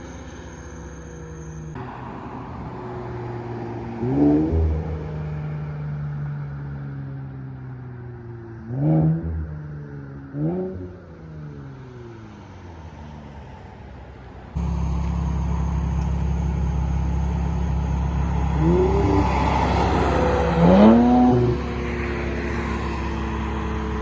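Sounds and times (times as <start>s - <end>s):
car engine revving: 2.6s - 5.9s, 10.3s - 11.5s, 14.5s - 24.0s.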